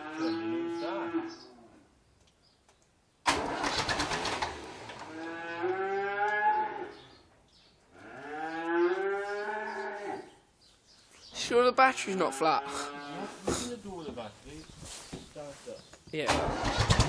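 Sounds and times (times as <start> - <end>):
cattle mooing: 5.0 - 7.0, 8.0 - 10.3, 12.2 - 13.4.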